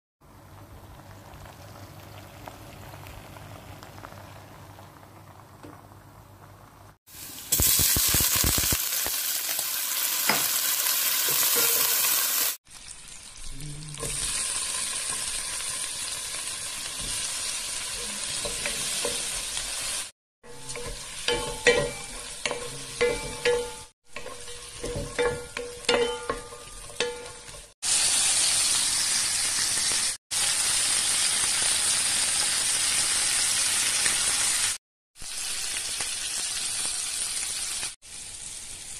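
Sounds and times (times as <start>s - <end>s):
food sizzling in hot oil: 6.4s - 38.9s
stirring knocks and scrapes on pan: 18.2s - 19.7s, 20.4s - 27.8s.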